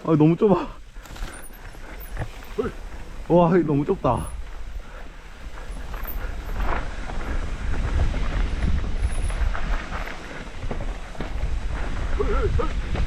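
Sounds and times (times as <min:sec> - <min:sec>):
wind buffeting microphone: 0:00.7 - 0:13.0
bike clicks and rattles: 0:00.9 - 0:13.0.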